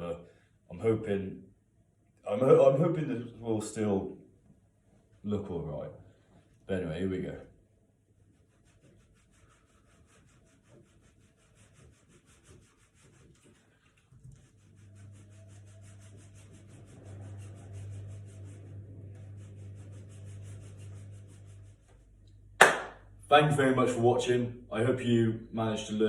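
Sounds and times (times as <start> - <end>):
model structures rubbing and scraping: 14.5 - 21.8.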